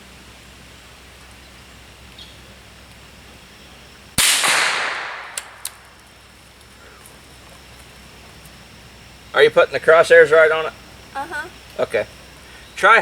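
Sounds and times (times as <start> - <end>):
rifle shot with echo: 4.2 - 5.9.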